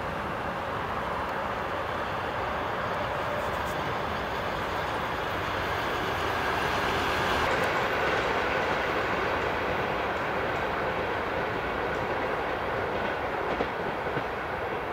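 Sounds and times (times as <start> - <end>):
train wheels on rails: 0.0 - 14.9.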